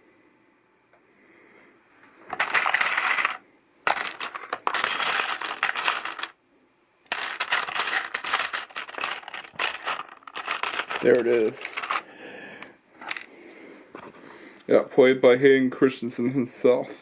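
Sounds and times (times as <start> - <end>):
plastic bricks clattering: 2.3 - 6.4, 7.1 - 13.3.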